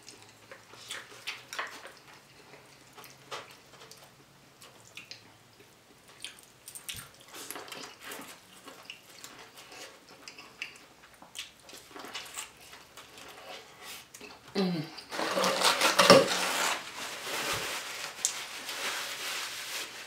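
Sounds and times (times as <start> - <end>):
wet chewing and mouth sounds: 0.0 - 15.1.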